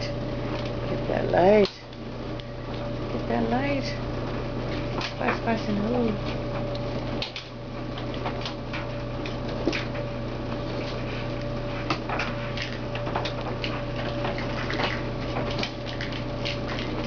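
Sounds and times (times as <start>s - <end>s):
steady hum: 0.0s - 17.0s
paws and toys clicking and scratching: 6.3s - 17.0s.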